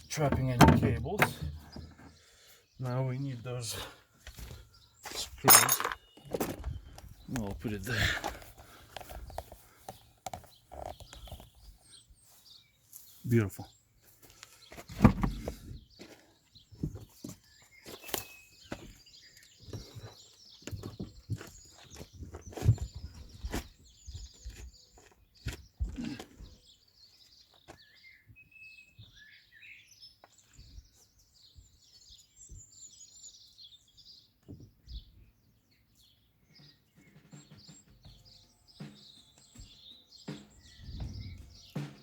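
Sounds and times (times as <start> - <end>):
birds chirping and singing: 0.0 - 42.0
sharp clicks and knocks: 0.3 - 2.0.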